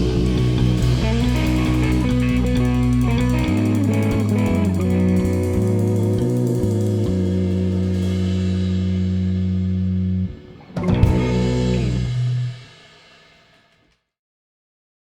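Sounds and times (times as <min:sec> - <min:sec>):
drum and cymbal crash: 0:00.0 - 0:09.8, 0:10.4 - 0:13.8
guitar and bass chord: 0:00.0 - 0:12.8
band final chord: 0:10.3 - 0:12.8.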